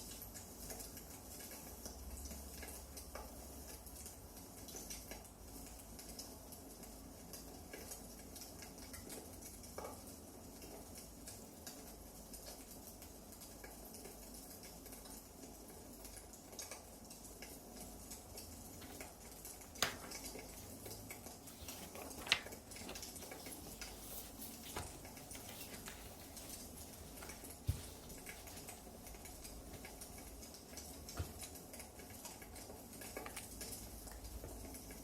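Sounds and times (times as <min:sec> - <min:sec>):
wood fire crackling: 0:17.4 - 0:34.4
soft hiss: 0:17.5 - 0:33.9.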